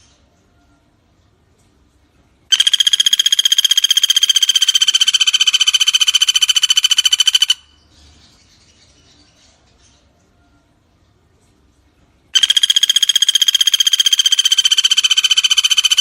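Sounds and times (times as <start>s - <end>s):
woodpecker rattling call: 2.5s - 7.8s, 12.4s - 16.0s.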